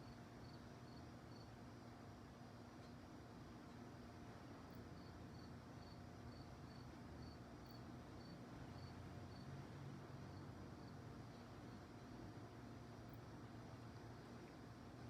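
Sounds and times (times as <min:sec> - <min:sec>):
cricket chirping: 0:00.0 - 0:01.9, 0:04.6 - 0:15.0
low background hiss: 0:00.0 - 0:15.0.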